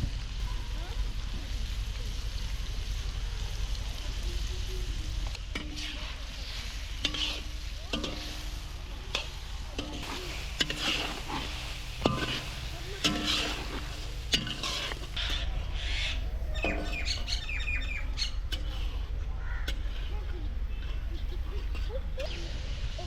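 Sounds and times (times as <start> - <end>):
food sizzling in a pan: 0.0 - 23.0
metal utensil scraping a pan: 5.5 - 17.4.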